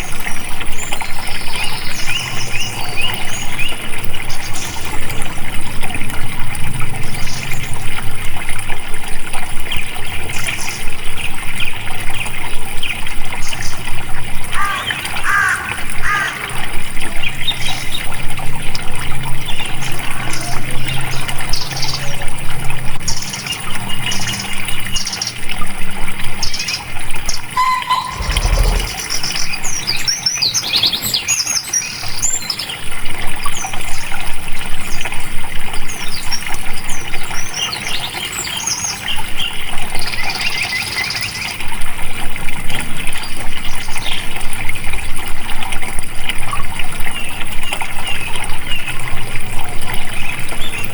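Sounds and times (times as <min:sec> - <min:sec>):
flowing water: 0:00.0 - 0:50.9
birds chirping: 0:26.4 - 0:30.1.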